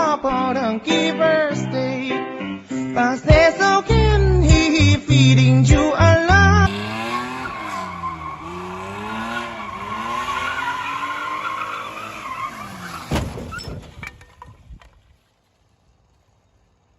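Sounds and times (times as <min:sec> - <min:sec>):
car engine running: 0:06.7 - 0:12.4
car tyres squealing: 0:06.7 - 0:14.8
loud bang: 0:13.0 - 0:13.8.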